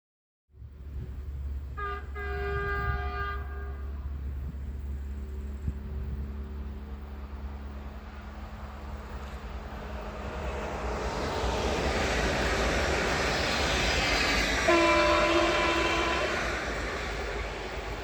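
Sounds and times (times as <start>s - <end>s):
train rumble: 0.6s - 18.0s
locomotive horn: 1.7s - 4.2s, 14.7s - 17.0s.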